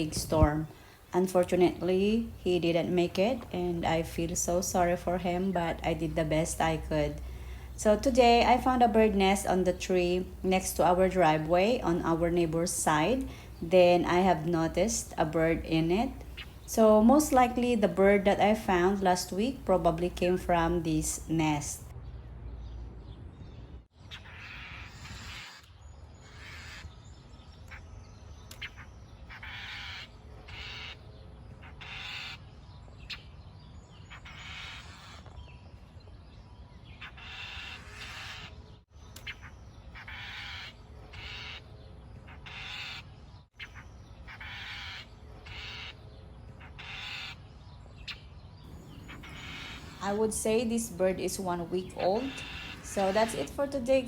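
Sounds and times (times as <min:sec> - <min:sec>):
baby bird begging calls: 0:43.6 - 0:45.9, 0:46.6 - 0:47.4, 0:48.7 - 0:54.0
steady low rumble: 0:48.7 - 0:54.0.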